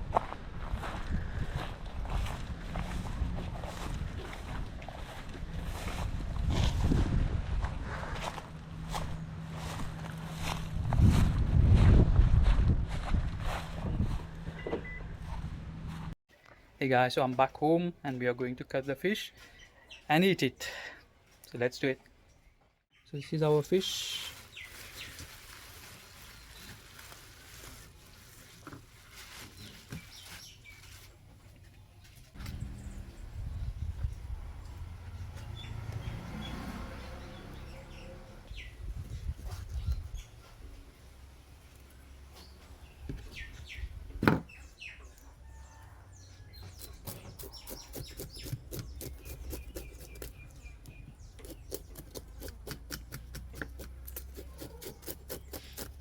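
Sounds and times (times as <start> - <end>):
birds chirping: 29.6 - 40.8, 41.8 - 52.8
knife scraping fish scales: 51.4 - 56.0.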